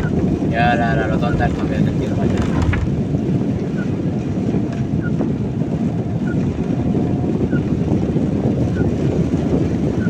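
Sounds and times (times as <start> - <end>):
car engine and tyres on wet road: 1.1 - 4.9.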